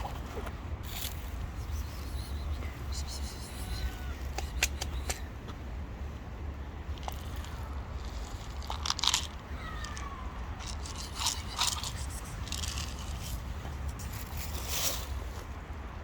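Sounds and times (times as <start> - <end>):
cat crunching food: 7.0 - 9.4, 10.6 - 13.2.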